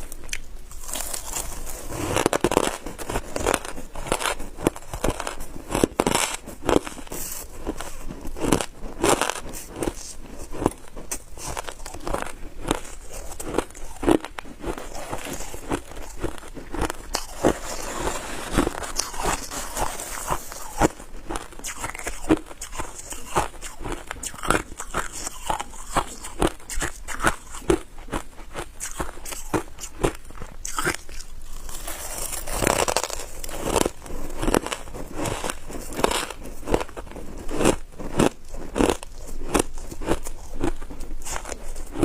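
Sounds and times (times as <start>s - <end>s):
ice being chewed: 0.0s - 42.0s.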